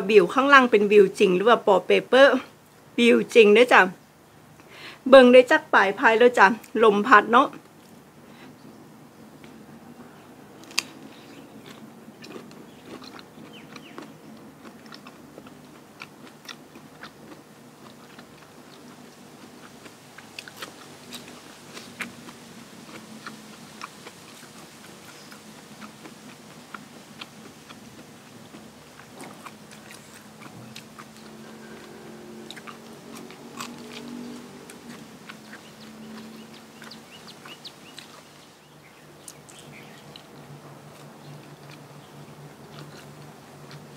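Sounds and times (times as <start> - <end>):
person chewing and crunching food: 10.6 - 38.5, 39.2 - 43.9.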